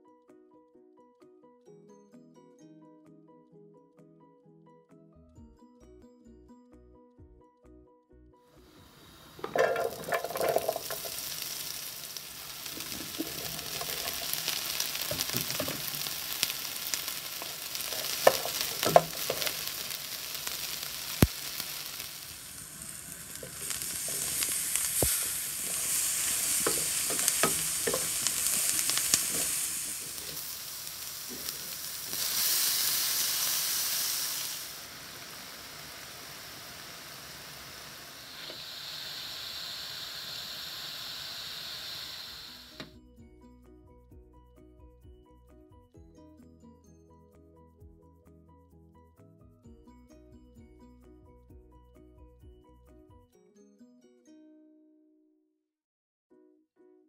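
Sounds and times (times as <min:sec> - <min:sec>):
vegetables sizzling in a pan: 0:08.6 - 0:42.9
utensil clattering: 0:09.3 - 0:33.3.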